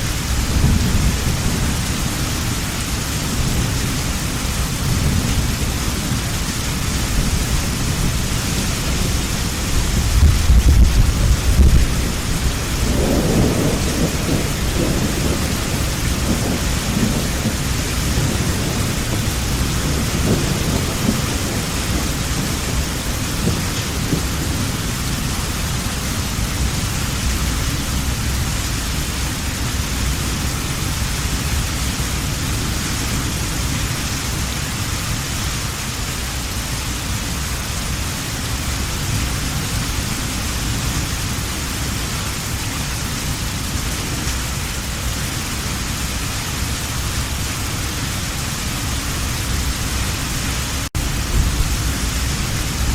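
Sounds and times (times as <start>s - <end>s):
rolling thunder: 0.0s - 34.5s, 48.8s - 52.9s
heavy rain: 0.0s - 52.9s.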